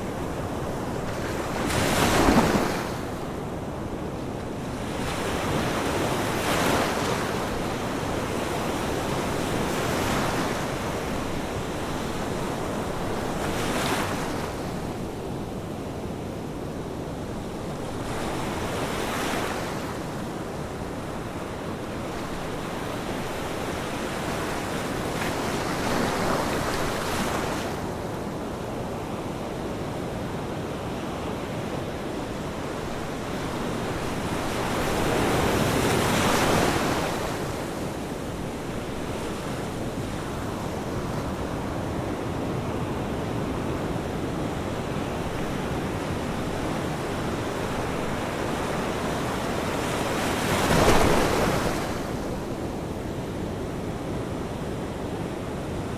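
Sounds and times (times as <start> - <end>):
ocean waves breaking: 0.5 - 3.2, 45.0 - 52.5.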